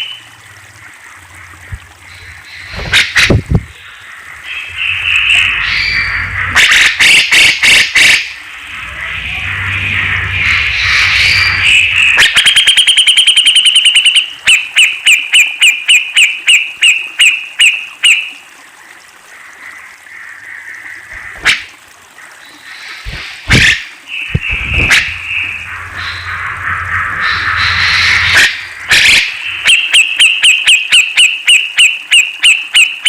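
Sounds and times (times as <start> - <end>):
bulbul calling: 10.8 - 18.3, 23.1 - 33.0.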